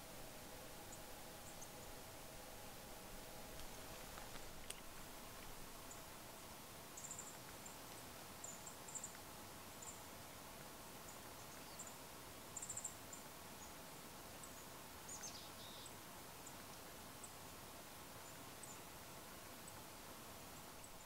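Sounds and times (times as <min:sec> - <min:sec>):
quiet steady hiss: 0:00.0 - 0:21.0.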